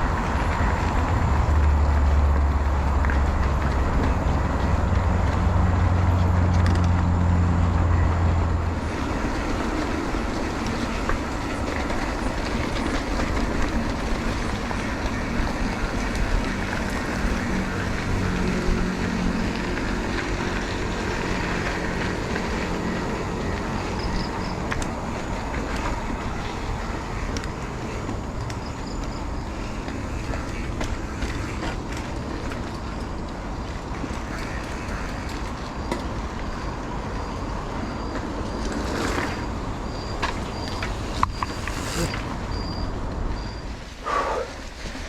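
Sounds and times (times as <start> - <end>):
motorcycle engine running: 0.0 - 33.6
wind and road noise: 0.0 - 45.0.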